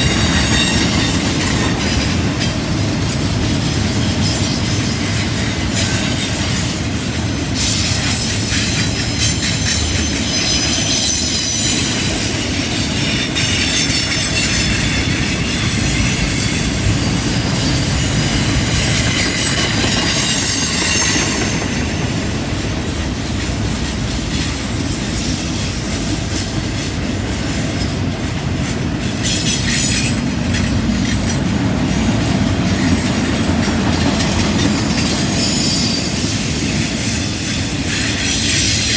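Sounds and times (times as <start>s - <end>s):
freight train wheels rumbling on rail: 0.0s - 38.9s
high-pitched wheel squeal: 9.4s - 22.9s.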